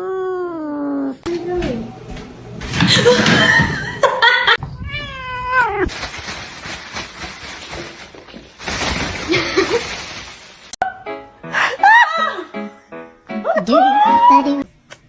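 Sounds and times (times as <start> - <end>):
cat meowing: 4.6 - 5.9.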